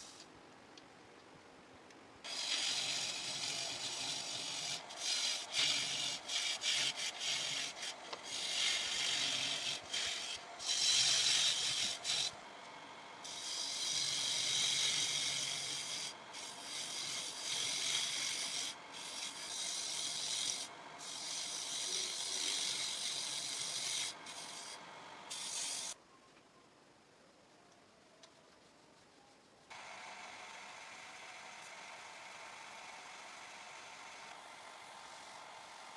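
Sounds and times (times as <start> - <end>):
sandpaper rubbing on wood: 2.3 - 12.4, 13.3 - 26.0.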